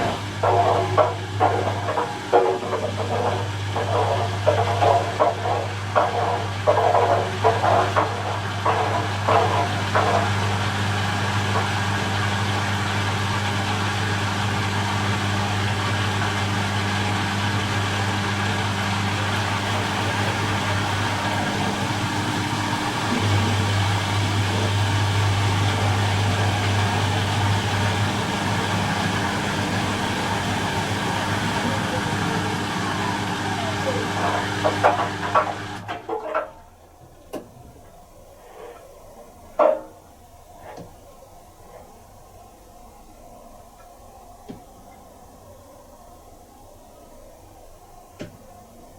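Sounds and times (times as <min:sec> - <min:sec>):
washing machine spinning hum: 0:00.0 - 0:48.9.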